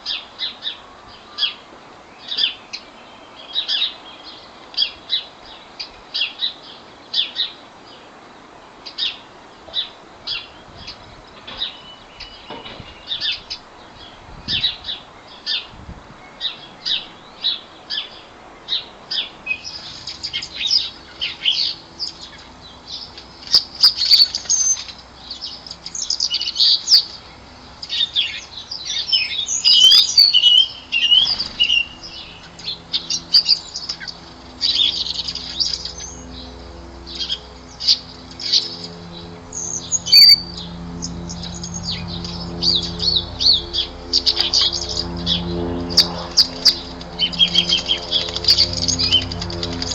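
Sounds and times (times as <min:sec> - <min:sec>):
birds chirping: 0:00.0 - 0:49.9
wings fluttering: 0:19.6 - 0:30.3, 0:30.9 - 0:49.9.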